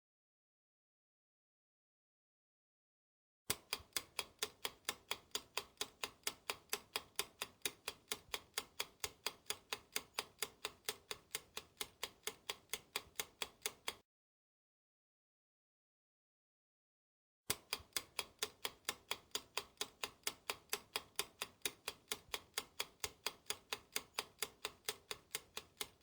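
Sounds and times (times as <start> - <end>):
clock ticking: 3.5 - 14.0, 17.5 - 26.0.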